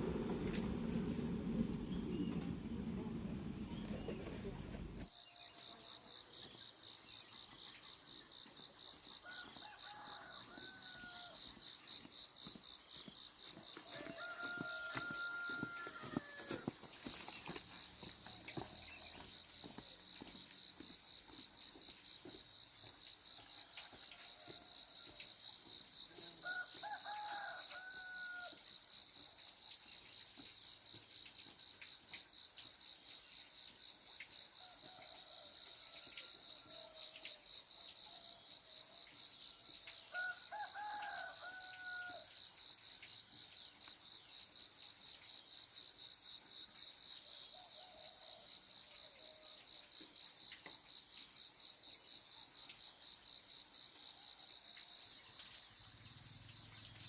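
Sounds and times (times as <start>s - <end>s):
insects trilling: 0.0s - 57.0s
rooster crowing: 9.2s - 11.6s, 13.8s - 16.8s, 26.2s - 28.6s, 40.1s - 42.4s.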